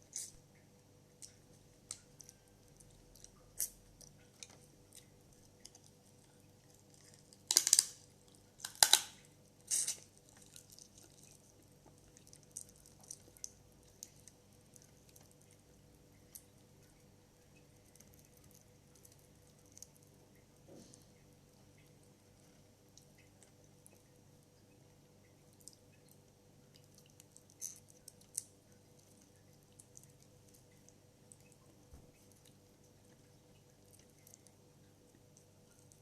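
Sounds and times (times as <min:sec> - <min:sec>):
wet chewing clicks and smacks: 0:00.1 - 0:09.1, 0:09.7 - 0:20.5, 0:25.2 - 0:36.0.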